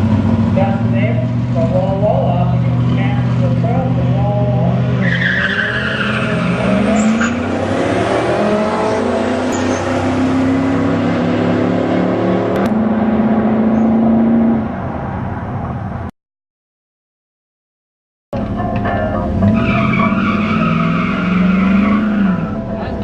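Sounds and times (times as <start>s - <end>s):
truck engine accelerating hard: 0.0s - 16.1s, 18.4s - 23.0s
high squeal: 19.4s - 22.9s.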